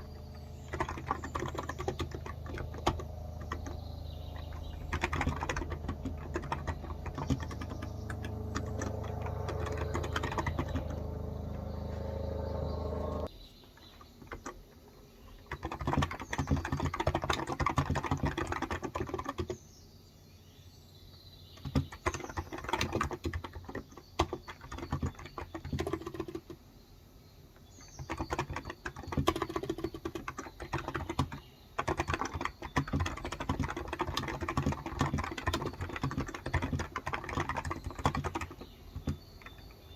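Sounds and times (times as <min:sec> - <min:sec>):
keyboard key clicks: 0:00.0 - 0:11.6
steady low hum: 0:00.0 - 0:13.3.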